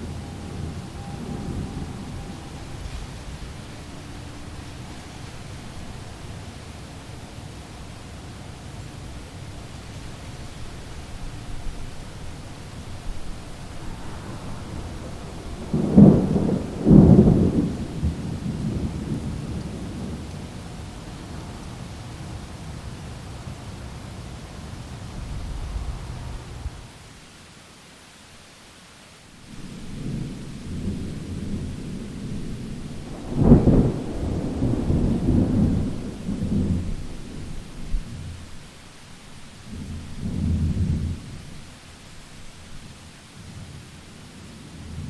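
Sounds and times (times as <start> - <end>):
thunder rumbling: 0.0 - 27.0, 29.5 - 43.8
steady rain: 0.0 - 45.0
sharp thunder crack: 12.8 - 20.2, 25.1 - 26.9, 32.3 - 38.1.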